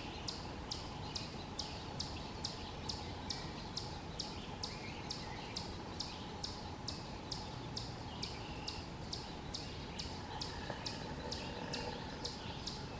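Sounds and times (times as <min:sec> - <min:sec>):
woodpecker nestling begging calls: 0:09.5 - 0:12.9.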